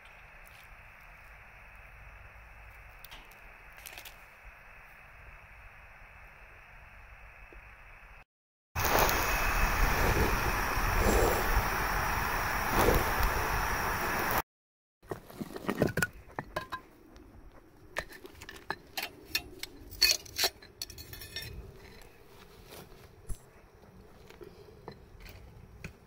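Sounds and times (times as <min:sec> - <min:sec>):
steady rushing noise: 0:08.8 - 0:14.4.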